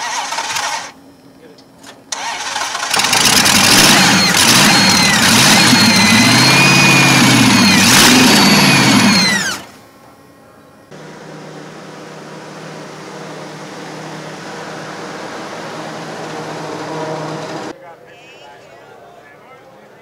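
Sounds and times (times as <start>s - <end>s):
supercharged engine revving: 2.2s - 9.7s, 10.9s - 17.7s.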